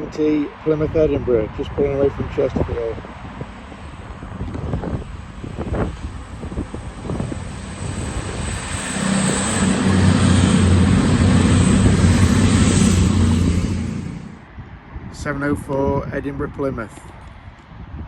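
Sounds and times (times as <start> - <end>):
diesel train passing: 5.0 - 14.5.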